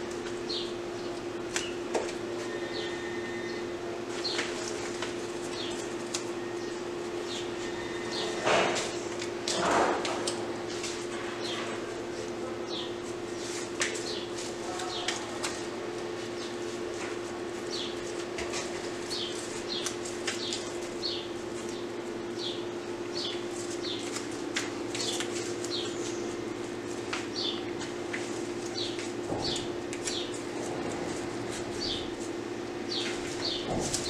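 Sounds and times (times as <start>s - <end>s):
small birds chirping: 5.5s - 5.9s, 12.6s - 13.0s, 14.0s - 15.3s, 17.6s - 18.0s, 19.1s - 24.2s, 25.0s - 26.4s, 27.2s - 27.7s, 28.6s - 30.4s, 31.7s - 32.2s, 32.9s - 33.8s.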